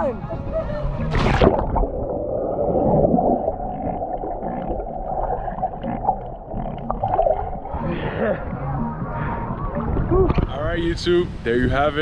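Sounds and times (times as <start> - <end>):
muffled underwater gurgling: 1.0 - 10.5.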